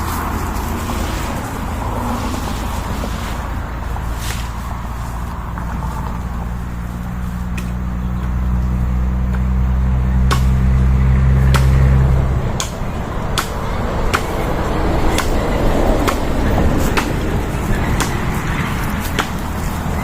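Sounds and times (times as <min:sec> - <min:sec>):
motor engine running: 0:00.0 - 0:20.0
sharp knocks: 0:10.2 - 0:10.8, 0:11.4 - 0:12.0.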